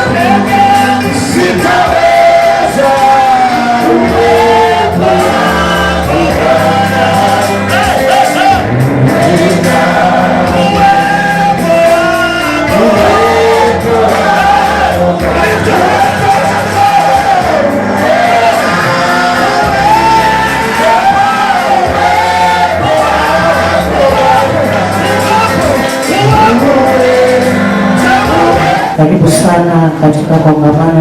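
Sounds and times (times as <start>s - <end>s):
gospel worship music: 0.0s - 31.0s.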